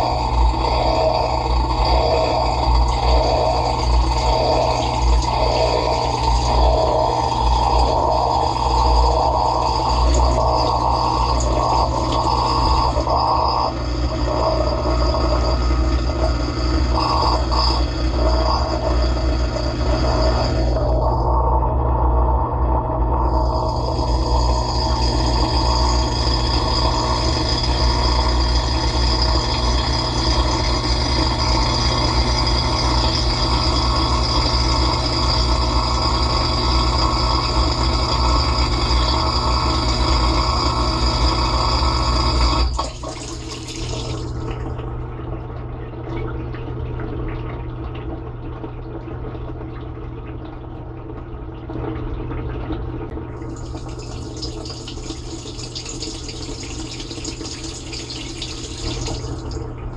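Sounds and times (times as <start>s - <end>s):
dishwasher pump humming: 0.0s - 59.9s
water moving in machine: 0.0s - 59.9s
water spraying: 42.7s - 44.4s, 53.5s - 59.6s.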